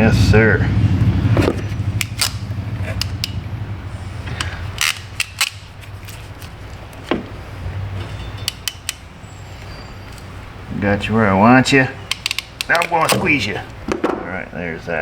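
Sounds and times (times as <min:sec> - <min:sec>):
steady low hum: 0:00.0 - 0:15.0
hand tools clicking and clacking: 0:01.4 - 0:03.4, 0:04.3 - 0:07.0, 0:08.0 - 0:10.3, 0:12.0 - 0:13.8.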